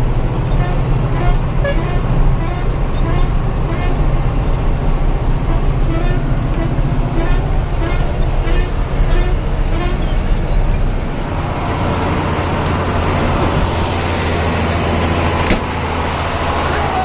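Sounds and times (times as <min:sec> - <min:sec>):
truck diesel engine running: 0:00.0 - 0:17.0
high squeaks: 0:09.7 - 0:10.9.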